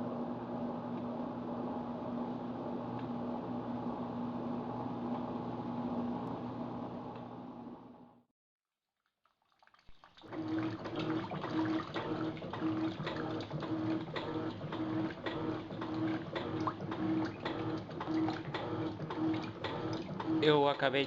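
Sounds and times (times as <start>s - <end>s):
water sloshing: 9.2s - 20.4s
washing machine motor humming: 10.3s - 21.0s.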